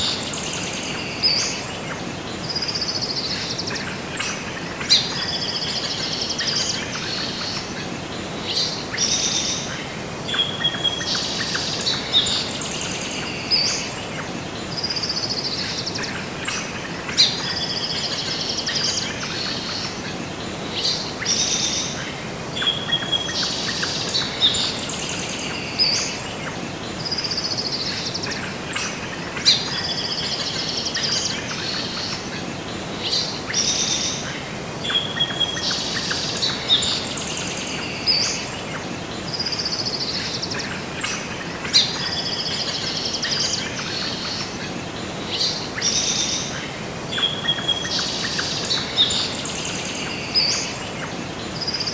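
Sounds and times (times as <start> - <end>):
background hiss: 0.0 - 51.9
birds chirping and singing: 22.6 - 51.9.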